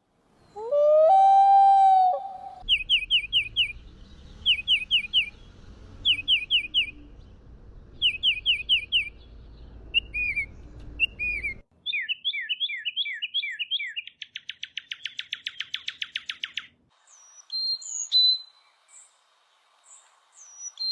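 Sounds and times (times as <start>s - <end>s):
high bird calls: 0.4s - 7.3s, 8.0s - 18.7s
bird whistling down-slurred phrases: 0.6s - 3.4s
bird fast trill: 2.6s - 3.8s.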